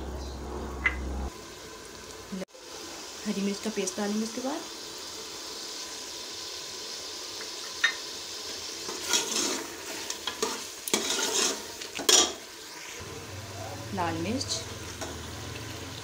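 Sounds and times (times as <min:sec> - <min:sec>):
paste sizzling in a pot: 0:01.3 - 0:16.0
metal ladle scraping a pot: 0:08.9 - 0:12.4.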